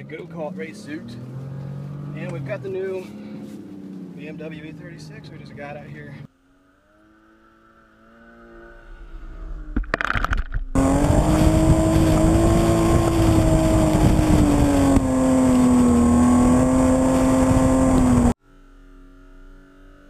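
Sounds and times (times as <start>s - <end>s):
car engine running hard: 10.8s - 18.4s.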